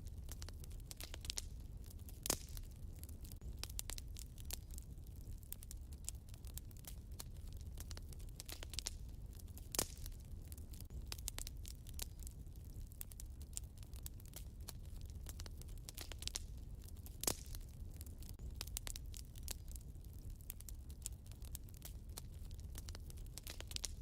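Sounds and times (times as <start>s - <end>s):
loud fire pops: 0.0s - 24.0s
low steady rumble: 0.0s - 24.0s
wood fire crackling: 0.0s - 24.0s.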